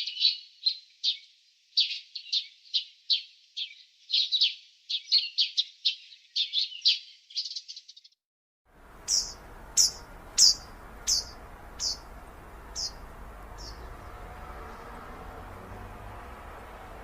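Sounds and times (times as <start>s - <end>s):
low background hiss: 8.7s - 17.0s
bird chirping sharp high notes: 9.0s - 14.1s.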